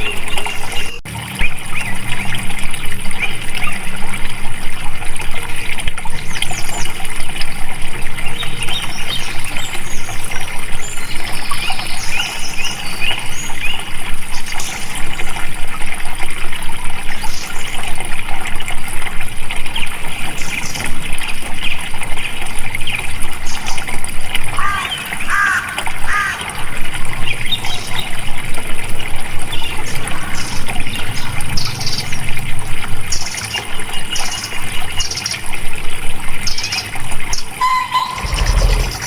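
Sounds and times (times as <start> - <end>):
stream water trickling: 0.0 - 39.0
high bird chirps: 37.6 - 39.0.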